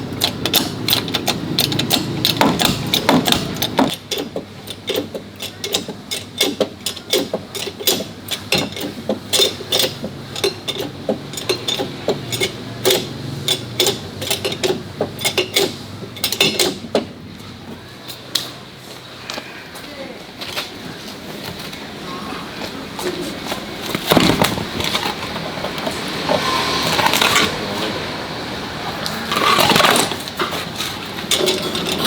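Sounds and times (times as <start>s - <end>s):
hand tools clanking on metal: 0.0s - 17.2s, 29.3s - 32.0s.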